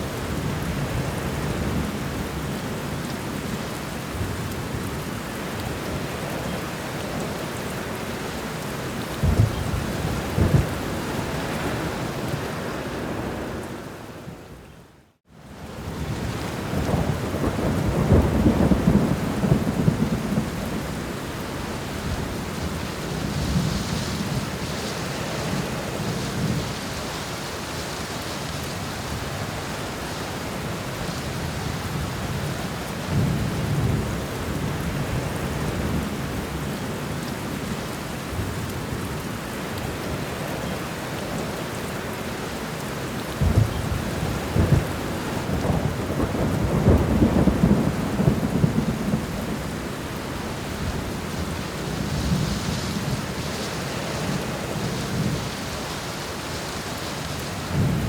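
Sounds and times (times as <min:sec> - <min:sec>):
steady rain: 0:00.0 - 0:58.0
rolling thunder: 0:09.1 - 0:11.9, 0:16.0 - 0:21.1, 0:43.4 - 0:49.9.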